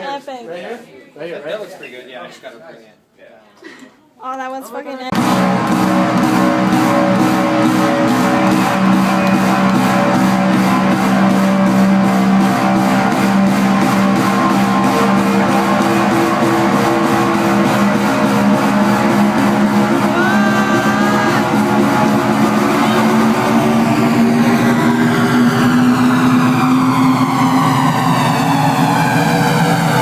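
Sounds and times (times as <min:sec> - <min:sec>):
hardstyle dance music: 0:05.1 - 0:28.1.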